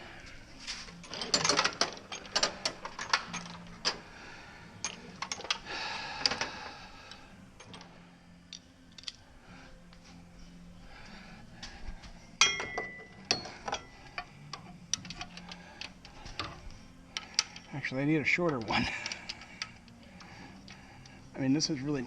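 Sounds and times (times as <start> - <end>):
faint steady hum: 0.0 - 22.0
socket wrench clicking on metal: 12.4 - 17.8, 18.4 - 21.2.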